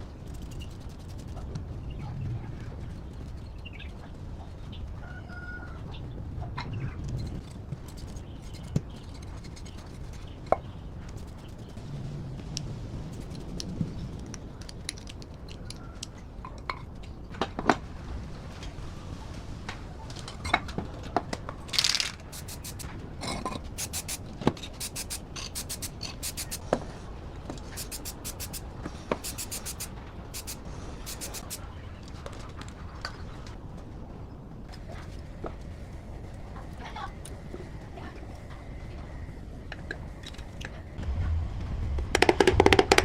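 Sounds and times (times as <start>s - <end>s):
quick ticks: 21.8s - 22.9s, 23.8s - 24.2s, 24.8s - 26.6s, 27.8s - 28.6s, 29.2s - 31.6s.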